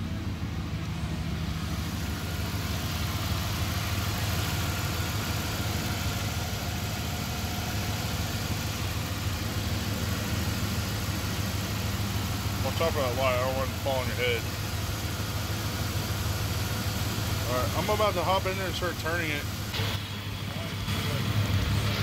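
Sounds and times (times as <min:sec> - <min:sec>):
truck engine idling: 0:00.0 - 0:22.0.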